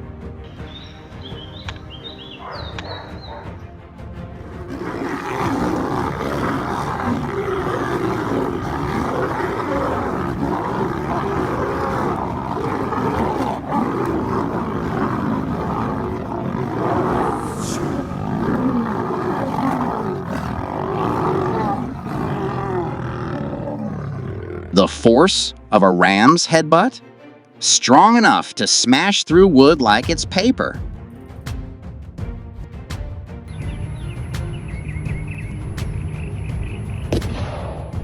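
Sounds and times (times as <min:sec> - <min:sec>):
animals growling and roaring: 0:00.7 - 0:03.6, 0:04.2 - 0:25.3.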